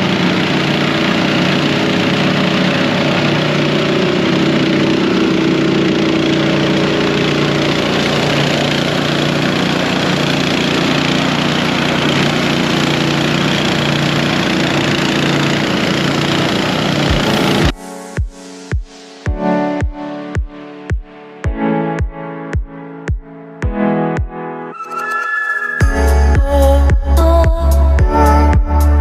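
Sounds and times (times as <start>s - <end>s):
engine running steadily: 0.0s - 17.7s, 25.8s - 29.0s.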